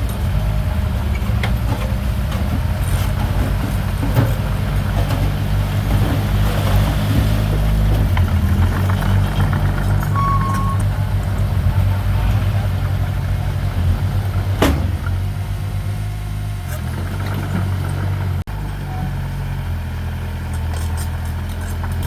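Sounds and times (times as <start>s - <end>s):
metallic clanks: 0.0s - 15.8s
deep diesel engine rumble: 0.0s - 22.0s.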